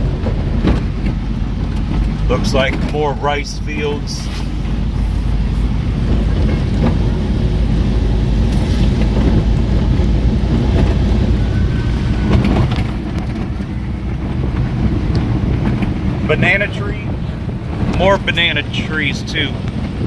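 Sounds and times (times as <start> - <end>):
engine and tyre rumble: 0.0 - 20.0
vehicle knocks and rattles: 0.0 - 20.0.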